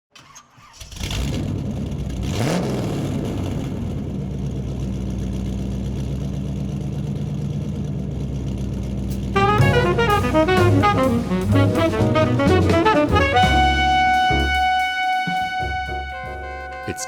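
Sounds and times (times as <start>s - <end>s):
car engine starting and idling: 0.2s - 11.8s.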